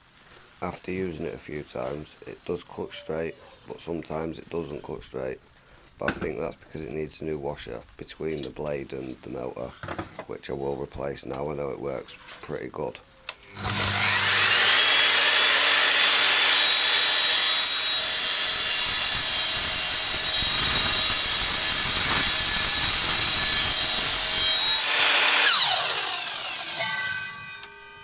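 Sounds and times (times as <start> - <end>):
mitre saw whining: 13.4 - 28.0
saw cutting through wood: 13.5 - 28.0.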